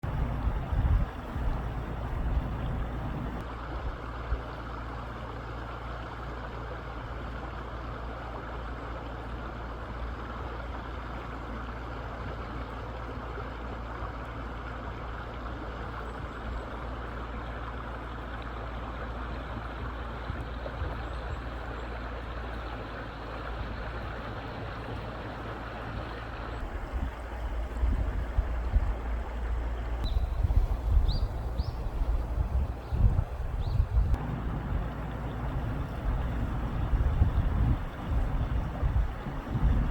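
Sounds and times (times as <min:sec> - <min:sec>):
wind rumbling on microphone: 0:00.0 - 0:04.5, 0:23.2 - 0:39.9
stream running over rocks: 0:00.0 - 0:39.9.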